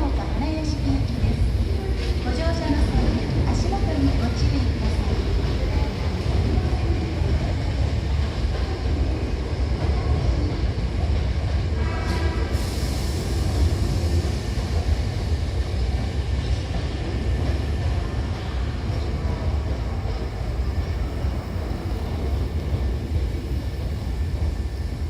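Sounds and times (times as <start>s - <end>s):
electric train rumbling: 0.0s - 25.0s
air hiss: 12.5s - 15.0s.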